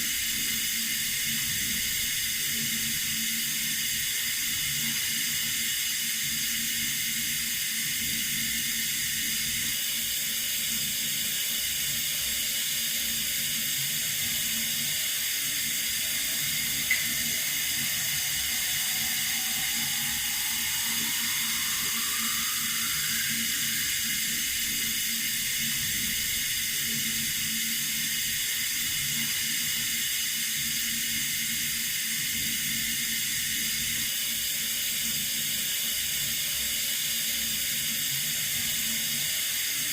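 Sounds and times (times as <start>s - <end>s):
water running from a tap: 0.1s - 34.0s
faint rising tone: 14.8s - 26.2s.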